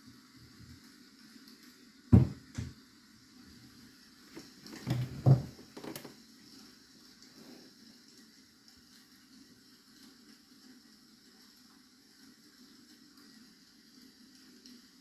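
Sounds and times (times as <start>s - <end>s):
objects knocking on a desk: 2.1s - 2.8s, 4.8s - 6.1s.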